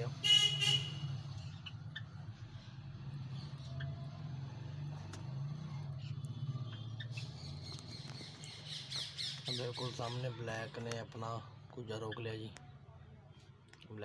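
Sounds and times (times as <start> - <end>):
sparrows chipping: 5.4 - 12.8.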